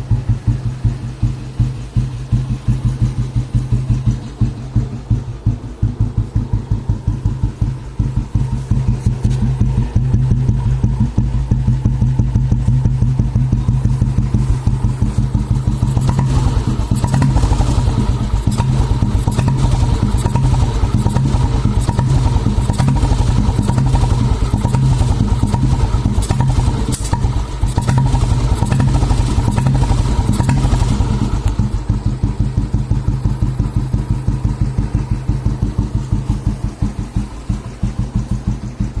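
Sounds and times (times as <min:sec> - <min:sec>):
engine mechanical clatter: 0:00.0 - 0:39.0
motorcycle exhaust thumps: 0:00.0 - 0:39.0.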